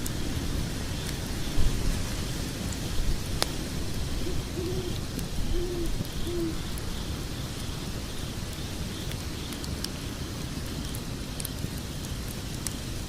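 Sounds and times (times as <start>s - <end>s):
log fire crackling: 0.0s - 13.0s
low hoots: 4.2s - 6.6s.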